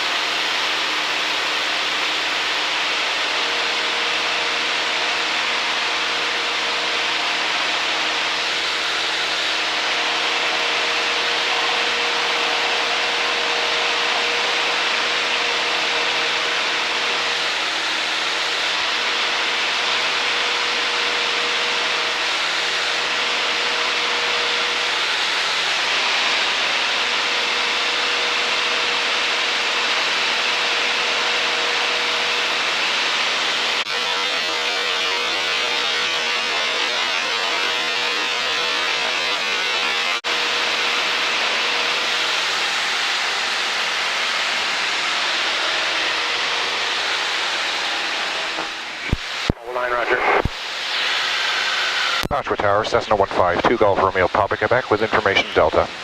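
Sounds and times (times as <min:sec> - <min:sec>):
small plane engine drone: 0:00.0 - 0:56.0.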